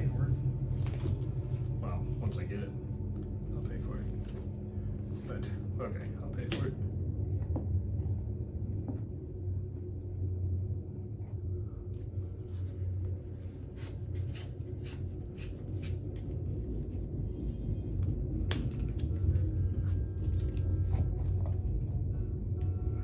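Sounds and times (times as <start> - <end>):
steady low hum: 0.0 - 23.0
playing cards clicking and swishing: 0.8 - 1.8, 3.6 - 4.5, 6.4 - 6.8, 12.0 - 17.4, 18.0 - 21.9.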